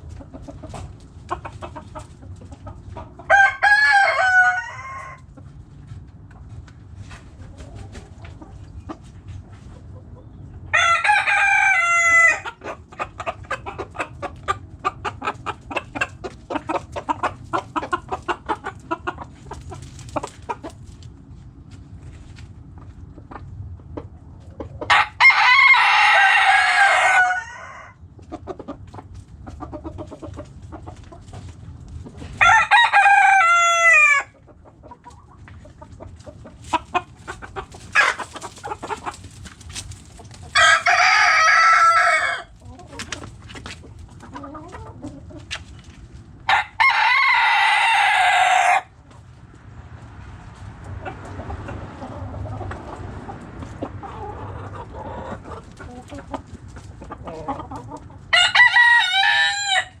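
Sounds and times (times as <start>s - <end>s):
hens clucking softly: 0.0s - 60.0s
rooster crowing: 3.3s - 5.3s, 10.7s - 12.4s, 24.9s - 28.0s, 32.4s - 34.3s, 40.5s - 42.5s, 46.5s - 48.9s, 58.3s - 60.0s.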